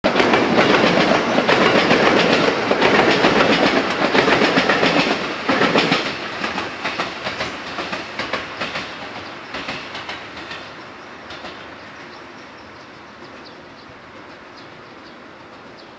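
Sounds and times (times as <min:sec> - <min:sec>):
train wheels clacking on rails: 0:00.0 - 0:15.9.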